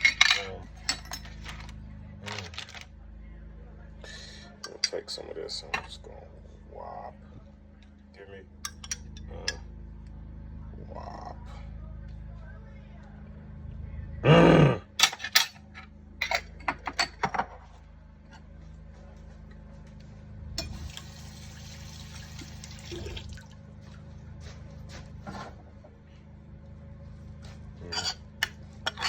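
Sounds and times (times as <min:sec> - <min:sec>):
low kitchen hum: 0:00.0 - 0:29.0.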